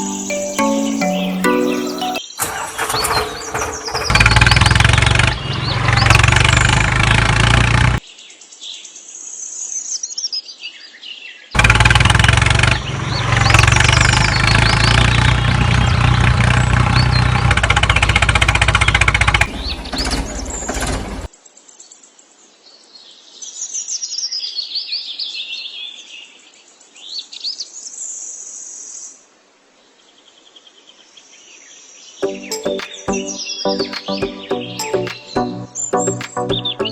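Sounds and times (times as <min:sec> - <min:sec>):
birds chirping: 0:00.0 - 0:07.6, 0:11.6 - 0:21.3, 0:32.2 - 0:36.9
small engine running: 0:02.4 - 0:08.0, 0:11.6 - 0:21.3.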